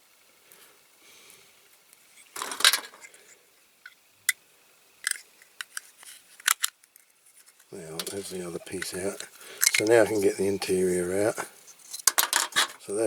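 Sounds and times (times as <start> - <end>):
tool scraping plastic: 7.9 - 10.7.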